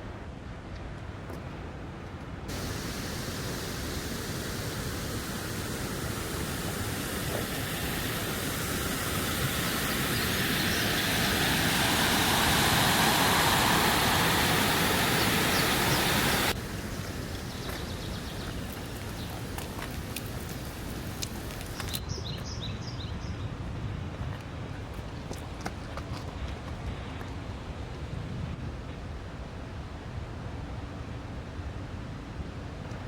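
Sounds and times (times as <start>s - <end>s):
rushing stream water: 2.5s - 22.8s.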